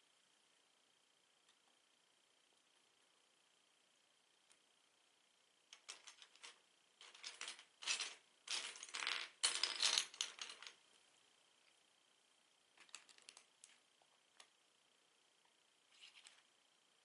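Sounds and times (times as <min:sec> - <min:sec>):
plastic bricks clicking and rattling: 0:05.8 - 0:10.8, 0:12.8 - 0:13.8.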